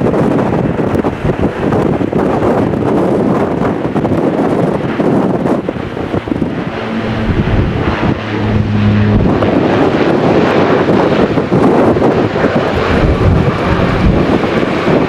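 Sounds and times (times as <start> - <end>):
wind buffeting microphone: 0.0 - 15.0
jet airliner passing: 0.2 - 15.0
low steady hum: 5.8 - 10.1.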